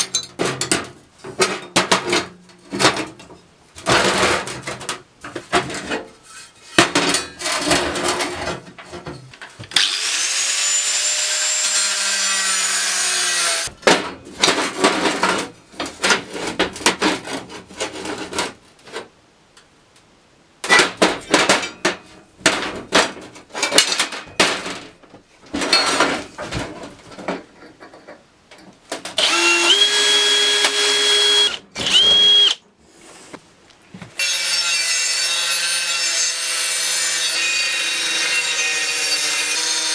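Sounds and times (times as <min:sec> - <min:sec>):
power tool whine: 0:09.8 - 0:13.7, 0:29.2 - 0:32.6.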